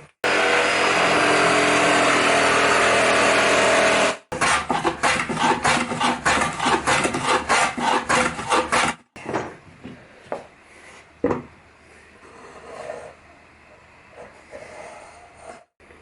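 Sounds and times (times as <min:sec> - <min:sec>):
woodworking router whining: 0:00.2 - 0:04.3
rasping strokes on wood: 0:04.4 - 0:09.0.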